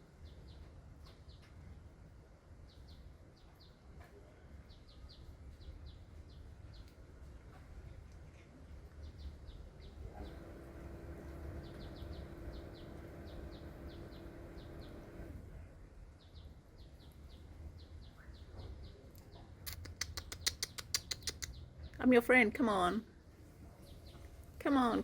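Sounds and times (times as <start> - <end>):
low background rumble: 5.6 - 18.2
small bird chirping: 8.9 - 15.4, 16.1 - 22.1
steady hum: 10.0 - 15.8
sharp clicks: 19.7 - 21.6.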